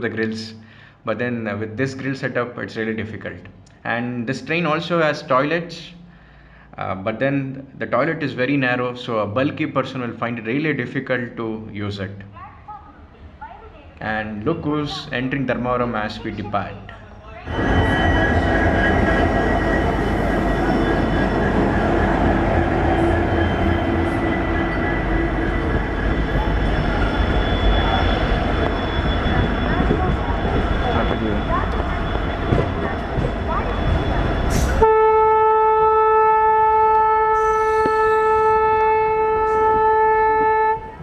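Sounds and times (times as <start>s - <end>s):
locomotive horn blast: 17.5s - 29.0s, 34.8s - 41.0s
electric train running: 17.5s - 34.9s
high whine: 17.5s - 35.0s.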